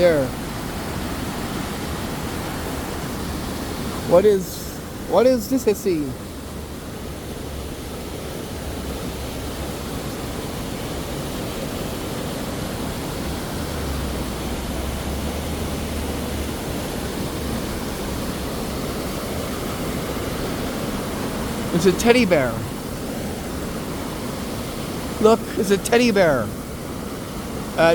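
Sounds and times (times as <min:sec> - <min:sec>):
waterfall roaring: 0:00.0 - 0:27.9.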